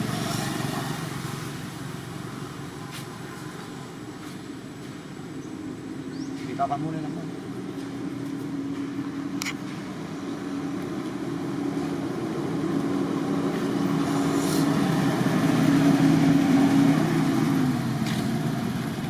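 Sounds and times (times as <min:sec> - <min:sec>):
vehicle engine running: 0:07.0 - 0:19.0.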